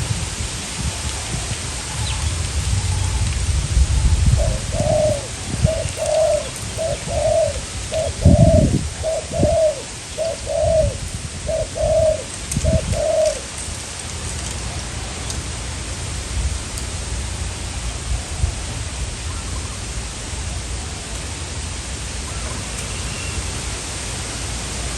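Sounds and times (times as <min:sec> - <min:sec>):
wind buffeting microphone: 0:00.0 - 0:22.7
dove cooing: 0:03.9 - 0:13.5.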